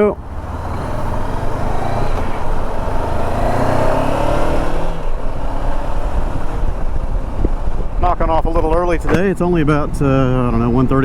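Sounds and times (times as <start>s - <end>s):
motorcycle engine pulling away: 0.0s - 8.9s
rush of wind and road noise: 0.0s - 11.0s.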